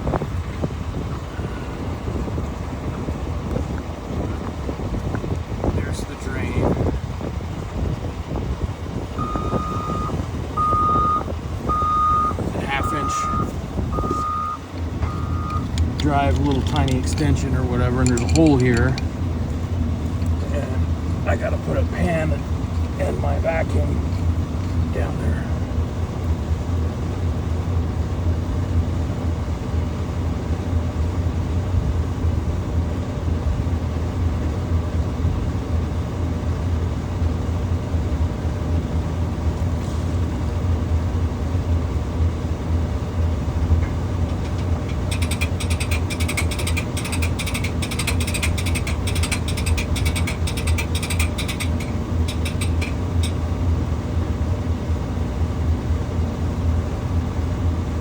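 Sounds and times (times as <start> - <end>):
engine idling: 0.0 - 58.0
rattling metallic clicking: 14.6 - 20.4, 43.5 - 53.6.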